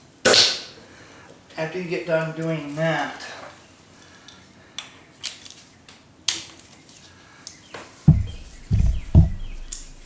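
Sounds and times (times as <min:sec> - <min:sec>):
dull thumps: 0:08.1 - 0:10.0.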